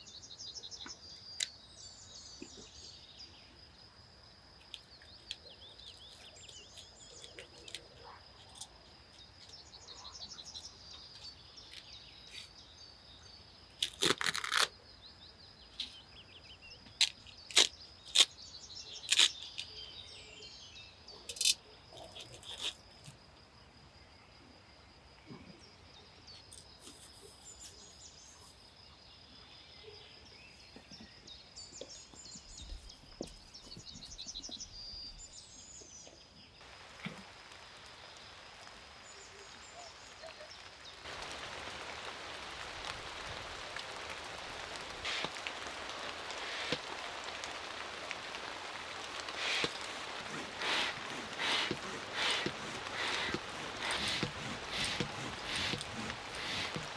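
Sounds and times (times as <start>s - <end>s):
small birds chirping: 0.0s - 23.2s, 25.3s - 56.9s
sharp cracks: 40.9s - 56.9s.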